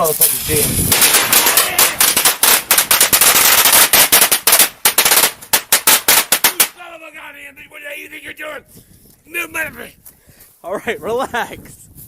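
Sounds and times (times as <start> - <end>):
firecrackers crackling: 0.0 - 7.2.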